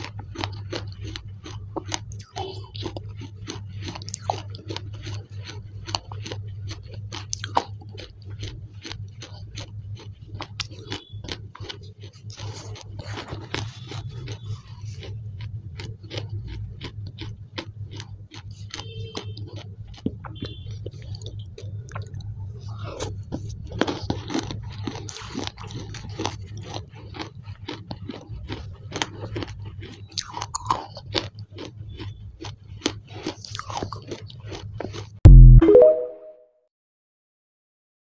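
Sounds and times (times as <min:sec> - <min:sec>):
wet chewing mouth clicks: 0:00.0 - 0:36.0
loud short tone: 0:35.3 - 0:36.4.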